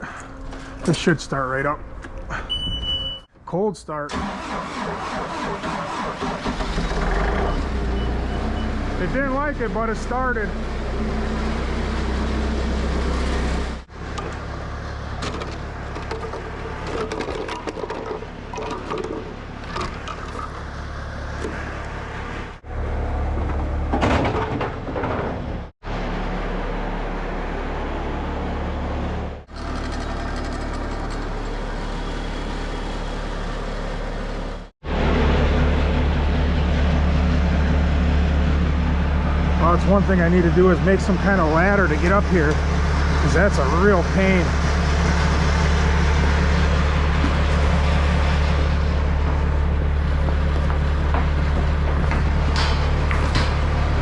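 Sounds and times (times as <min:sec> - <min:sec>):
diesel engine running: 0:04.1 - 0:54.0
clanks and knocks: 0:15.2 - 0:20.5, 0:23.4 - 0:25.6, 0:50.1 - 0:53.8.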